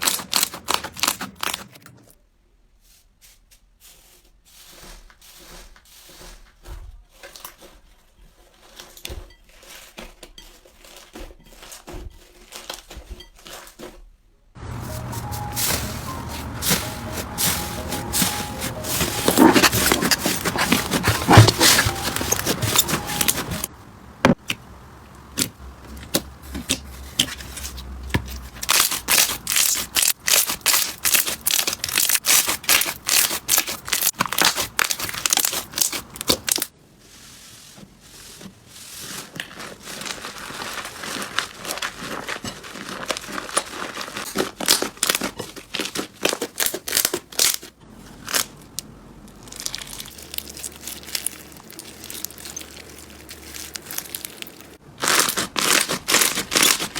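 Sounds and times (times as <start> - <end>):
slime crackling and popping: 28.5 - 36.7, 49.3 - 56.9.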